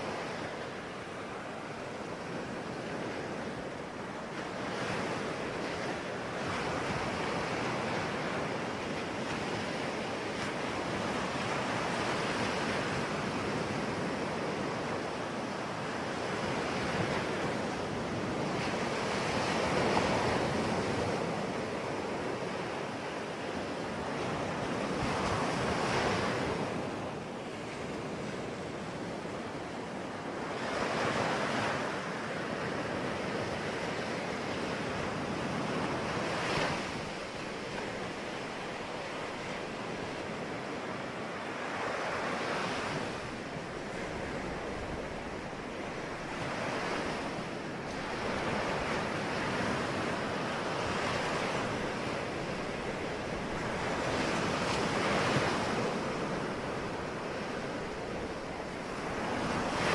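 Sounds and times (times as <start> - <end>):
waves breaking on shore: 0.0 - 59.9.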